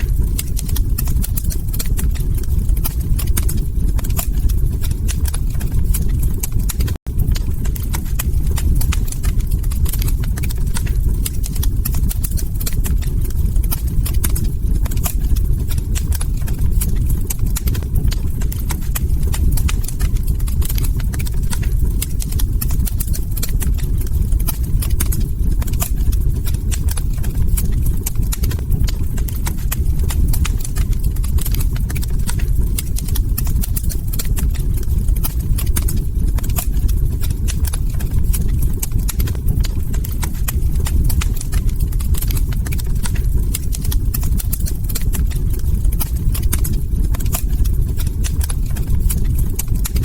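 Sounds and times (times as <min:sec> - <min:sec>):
fire popping and snapping: 0:00.0 - 0:50.0
log fire crackling: 0:00.0 - 0:50.0
low rumble of burning fire: 0:00.0 - 0:50.0.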